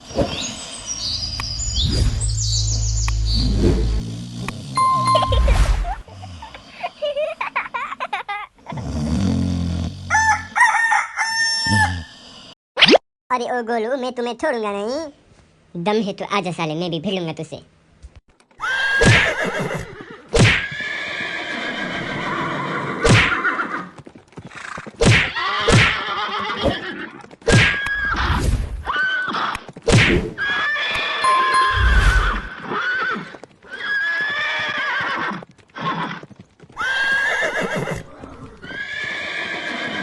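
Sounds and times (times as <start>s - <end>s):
horses neighing: 18.6s - 29.8s, 30.4s - 40.0s.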